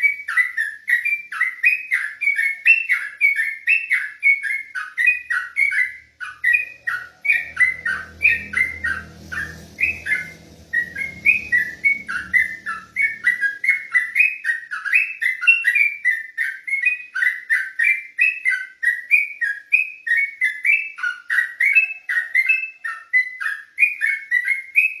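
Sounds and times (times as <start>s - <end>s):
bird singing whistled notes: 0.0s - 25.0s
low rumble: 6.6s - 14.1s.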